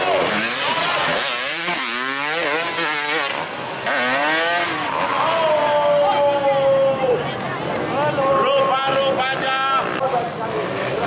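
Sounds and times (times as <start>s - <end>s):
motorcycle engine revving: 0.0s - 5.8s.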